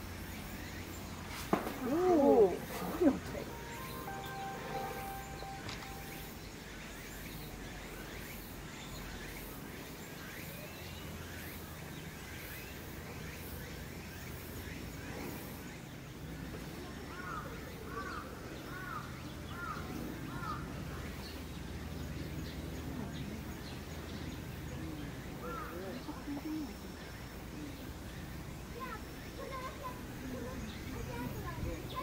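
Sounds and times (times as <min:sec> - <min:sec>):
birds chirping: 0:00.0 - 0:10.6
bird call notes: 0:03.4 - 0:06.5.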